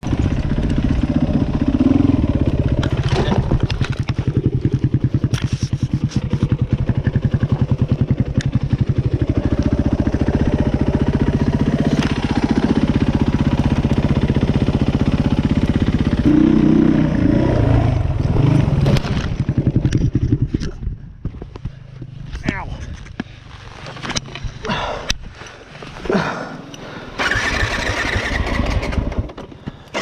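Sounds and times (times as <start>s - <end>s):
dirt bike engine revving: 0.0s - 20.6s, 27.2s - 29.4s.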